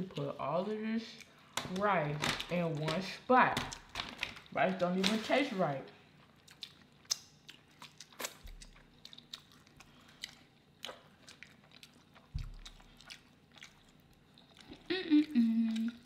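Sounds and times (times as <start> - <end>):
chewing and wet mouth sounds: 5.9 - 16.0
small mouth clicks and smacks: 6.4 - 13.9.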